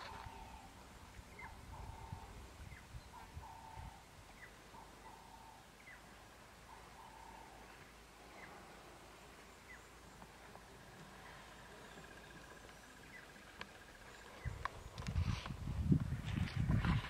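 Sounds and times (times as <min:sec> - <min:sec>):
wind rumble on microphone: 0:00.0 - 0:04.3, 0:14.4 - 0:17.0
bird calling: 0:00.0 - 0:15.1.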